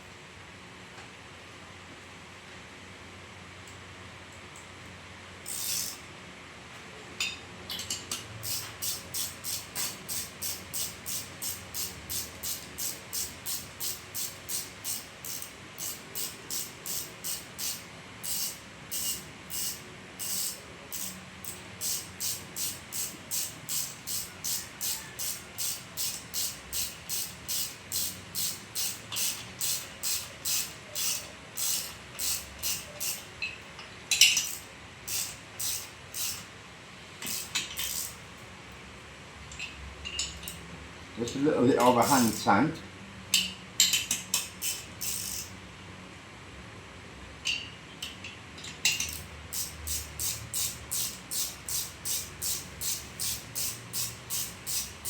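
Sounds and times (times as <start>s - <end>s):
ratchet wrench clicking: 5.4s - 6.0s, 7.7s - 36.5s, 37.2s - 38.2s, 41.8s - 42.5s, 43.4s - 45.6s, 47.5s - 55.0s.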